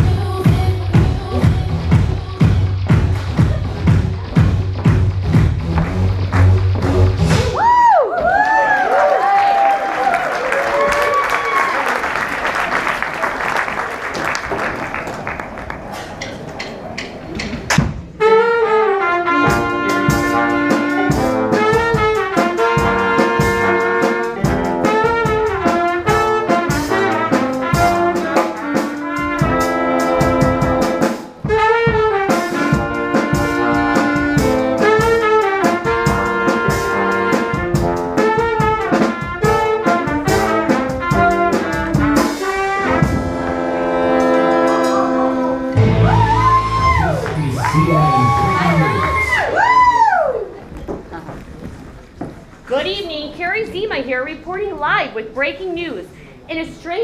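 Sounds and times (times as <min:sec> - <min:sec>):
brass band playing jazzy tune: 0:02.0 - 0:07.4, 0:18.1 - 0:46.7.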